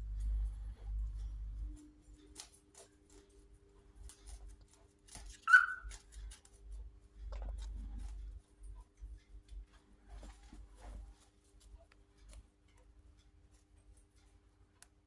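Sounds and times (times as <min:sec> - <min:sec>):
cockatiel chirp: 0:05.4 - 0:06.0.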